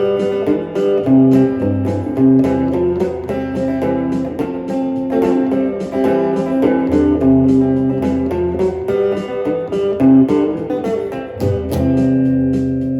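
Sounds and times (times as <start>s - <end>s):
country band playing: 0.0s - 12.9s.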